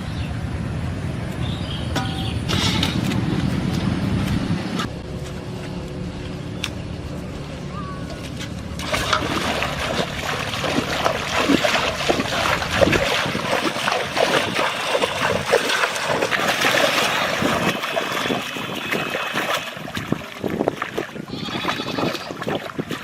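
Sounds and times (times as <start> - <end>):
water splashing and sloshing: 7.0 - 23.0.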